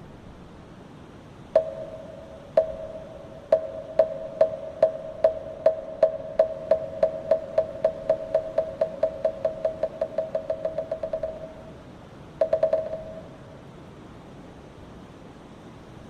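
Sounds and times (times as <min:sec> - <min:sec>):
wooden fish knocks: 0:02.6 - 0:11.5.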